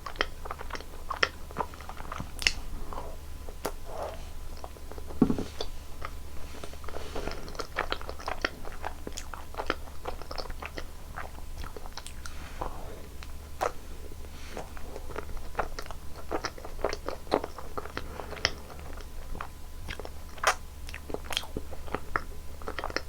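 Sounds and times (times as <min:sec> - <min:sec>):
person chewing and biting food: 0:00.0 - 0:12.3.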